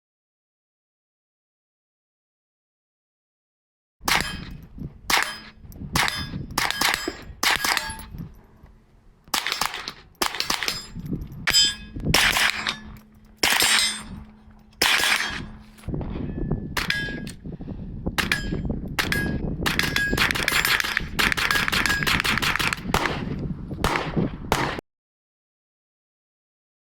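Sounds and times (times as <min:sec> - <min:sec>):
rifle shots with metallic ring: 0:04.0 - 0:08.2, 0:09.3 - 0:17.4, 0:18.2 - 0:23.3.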